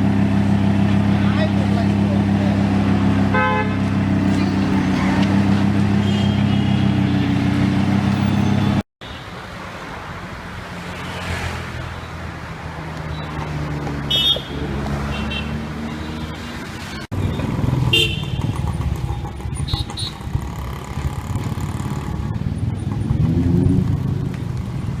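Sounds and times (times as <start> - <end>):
sports car engine idling: 0.0 - 4.4
engine hum: 0.0 - 8.8, 10.7 - 25.0
road traffic: 0.0 - 25.0
car horn toots: 3.0 - 4.2, 5.2 - 7.4, 14.1 - 15.6, 17.9 - 18.8.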